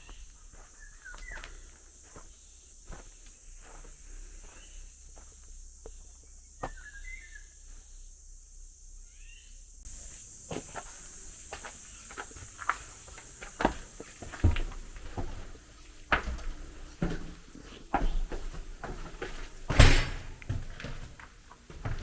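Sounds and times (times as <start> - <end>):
bird chirps: 0.0 - 1.7, 6.6 - 8.0, 9.0 - 9.6
footsteps walking: 0.0 - 6.9, 9.9 - 22.0
steady high hiss: 1.6 - 20.5.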